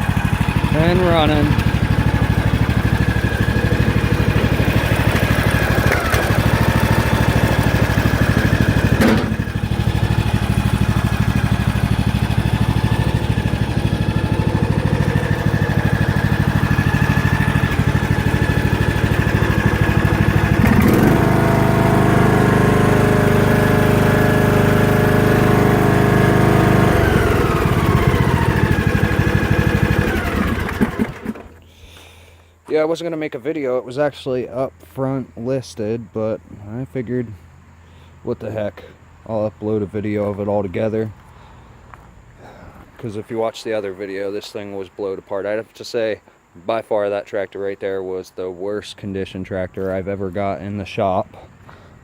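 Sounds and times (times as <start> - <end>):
lawn tractor engine running: 0.0 - 32.1.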